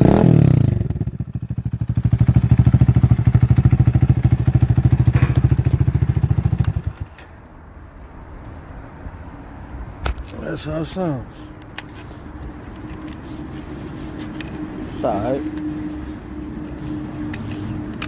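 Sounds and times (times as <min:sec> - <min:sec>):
motorcycle engine idling: 0:00.5 - 0:07.1.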